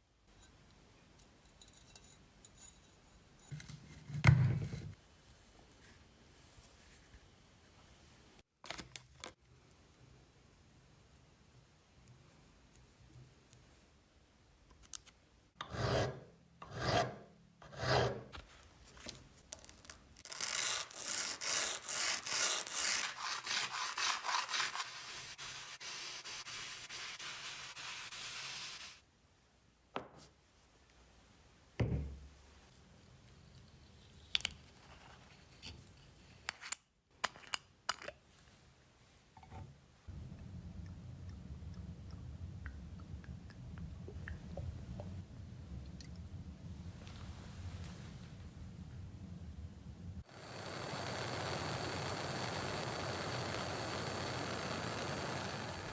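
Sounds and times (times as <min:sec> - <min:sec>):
rubbing strokes on workpiece: 0:20.4 - 0:29.0.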